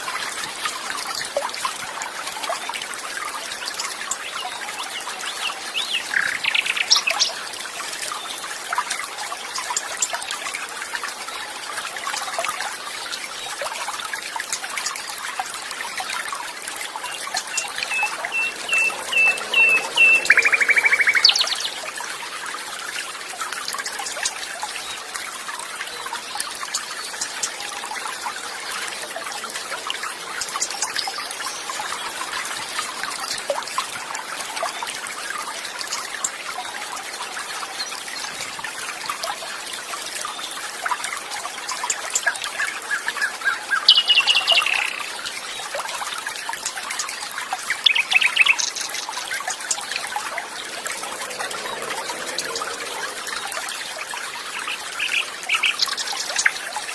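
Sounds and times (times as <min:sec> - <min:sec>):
water trickling: 0:00.0 - 0:56.9
birds chirping: 0:17.0 - 0:22.0, 0:43.5 - 0:45.2, 0:47.7 - 0:56.6.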